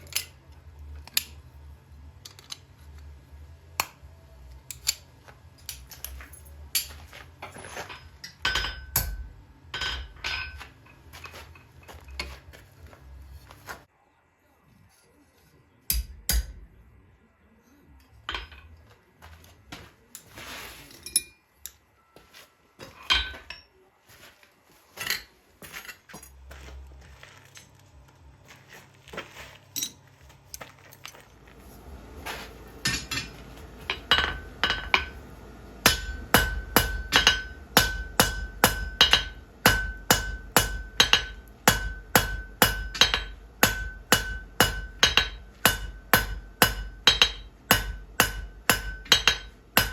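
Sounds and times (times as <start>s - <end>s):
hammer striking metal on anvil: 7.9s - 12.3s, 15.9s - 16.7s, 23.1s - 23.7s, 32.8s - 35.2s, 35.8s - 49.9s.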